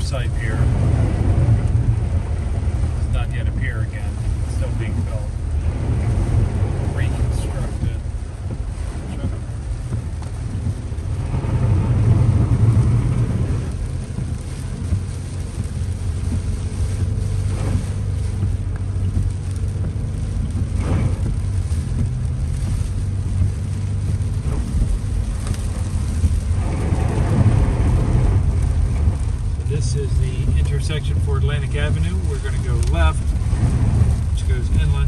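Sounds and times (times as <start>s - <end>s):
car road and engine rumble: 0.0s - 35.0s
tyre and rain hiss: 0.0s - 35.0s.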